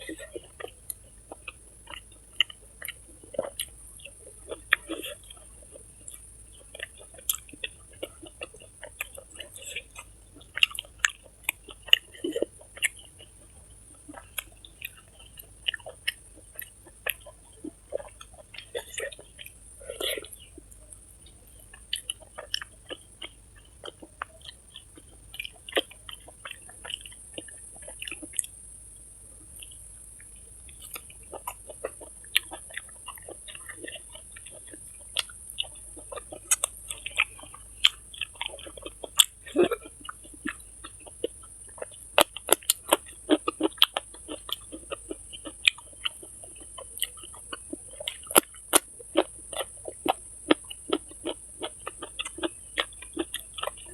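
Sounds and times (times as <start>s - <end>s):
wet chewing and lip smacking: 0.0s - 28.7s, 29.4s - 53.9s.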